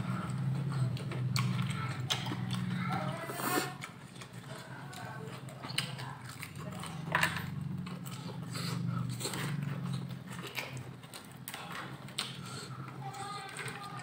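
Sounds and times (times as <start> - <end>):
chewing and crunching fried fish: 0.0 - 14.0.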